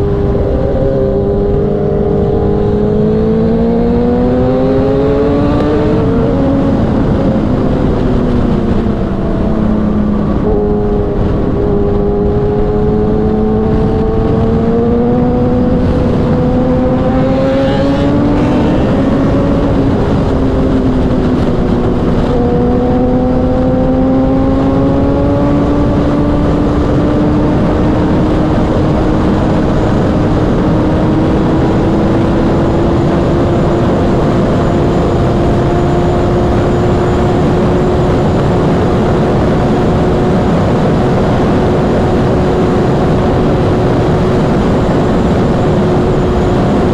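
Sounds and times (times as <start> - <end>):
motorcycle engine revving: 0.0 - 46.9
wind rush: 0.0 - 46.9.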